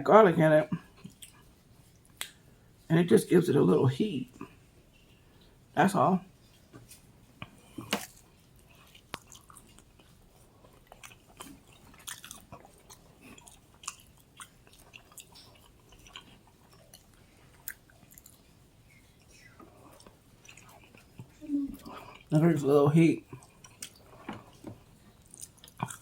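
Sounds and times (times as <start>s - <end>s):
chewing with wet mouth clicks: 0.8s - 2.4s, 7.4s - 22.3s, 23.2s - 26.0s.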